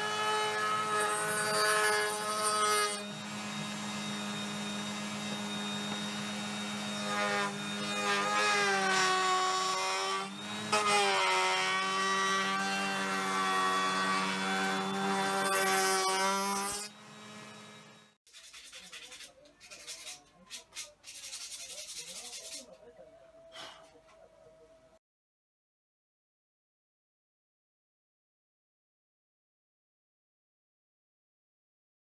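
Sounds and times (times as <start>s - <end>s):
electric power tool cutting wood: 0.0s - 18.2s.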